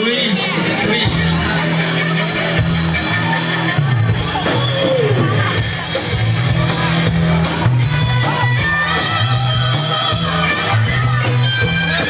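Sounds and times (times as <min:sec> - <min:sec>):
bass line: 0:00.0 - 0:12.0
electric guitar: 0:00.0 - 0:12.0
live band music: 0:00.0 - 0:12.0.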